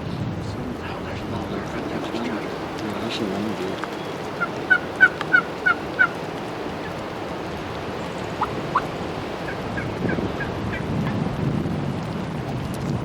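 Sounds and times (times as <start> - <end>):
turkey yelping: 3.8 - 7.0, 8.4 - 10.9.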